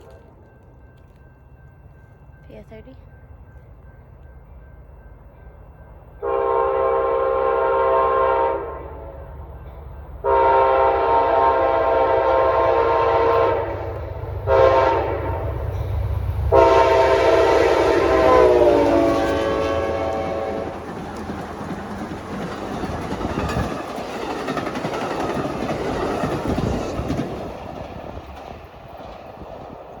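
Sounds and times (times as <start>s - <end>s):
train horn blasts: 6.2s - 9.4s, 10.2s - 15.6s, 16.5s - 20.8s
train wheels clattering: 17.0s - 30.0s.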